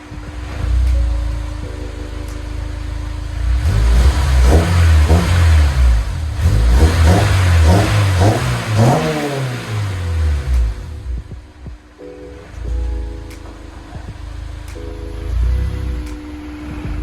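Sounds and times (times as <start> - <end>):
car engine revving hard: 3.0 - 11.2.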